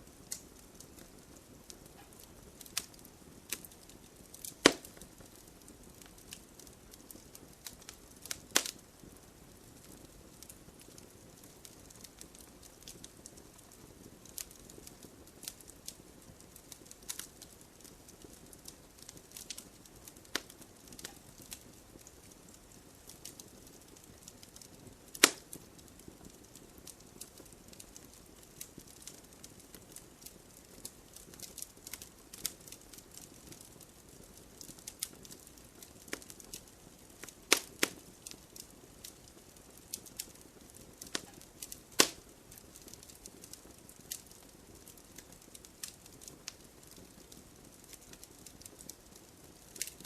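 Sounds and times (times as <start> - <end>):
campfire crackling: 0.0 - 50.0
loud fire pop: 4.6 - 5.0.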